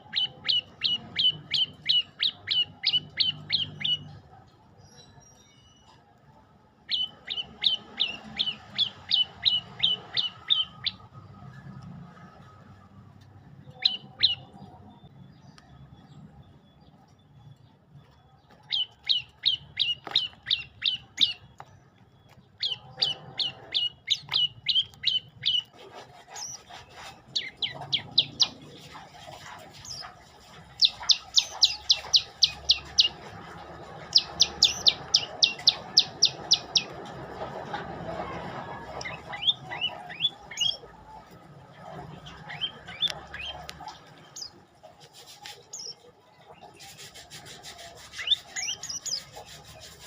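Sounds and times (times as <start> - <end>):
songbird trilling: 0.0 - 4.1, 6.9 - 11.0, 27.3 - 29.0, 30.7 - 37.0, 48.2 - 49.4.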